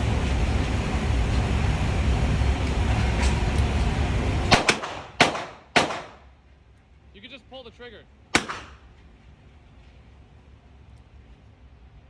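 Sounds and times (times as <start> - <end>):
gunshot cracks: 4.5 - 6.2, 8.4 - 8.8.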